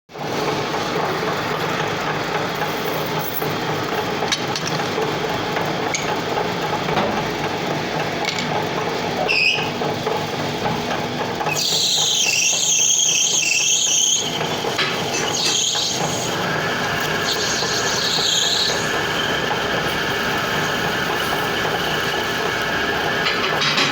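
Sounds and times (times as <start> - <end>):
lathe whirring and humming: 0.2 - 23.9
high squeal of cutting tool: 9.2 - 9.8, 11.4 - 23.3.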